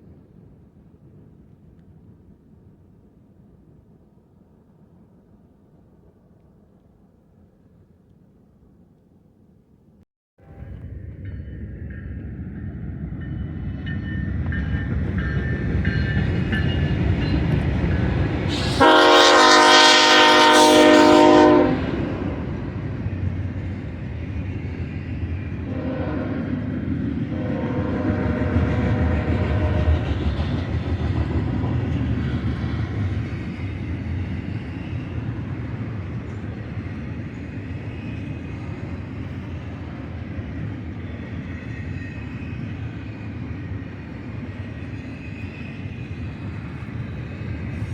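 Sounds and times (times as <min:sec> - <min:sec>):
diesel freight train rumbling: 0:10.4 - 0:47.9
wheels clacking on rails: 0:10.5 - 0:20.2, 0:21.8 - 0:47.9
multi-note train air horn: 0:18.5 - 0:22.6, 0:25.6 - 0:26.6, 0:27.3 - 0:30.1.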